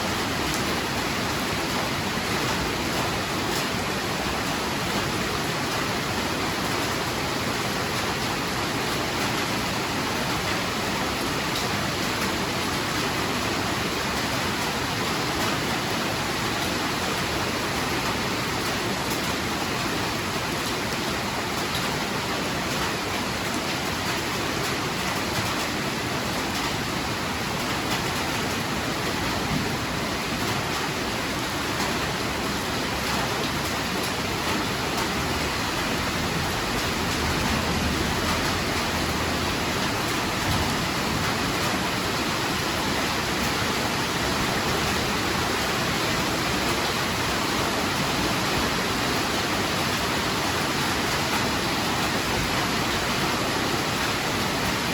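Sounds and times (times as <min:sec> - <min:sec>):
heavy rain hissing: 0:25.2 - 0:54.9.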